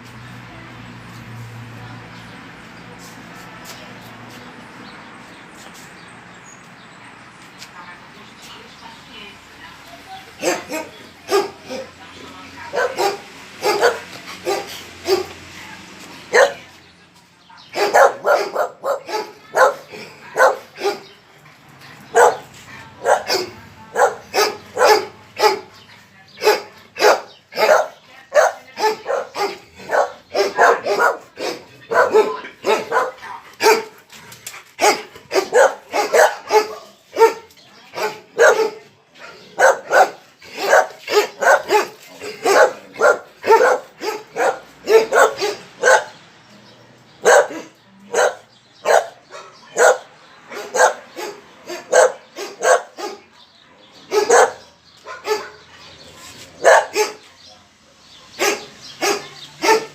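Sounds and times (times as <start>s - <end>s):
dog barking: 10.4s - 11.9s, 12.7s - 15.4s, 16.3s - 16.7s, 17.7s - 21.2s, 22.1s - 25.8s, 26.4s - 34.0s, 34.8s - 46.2s, 47.2s - 53.4s, 54.0s - 55.9s, 56.6s - 59.9s.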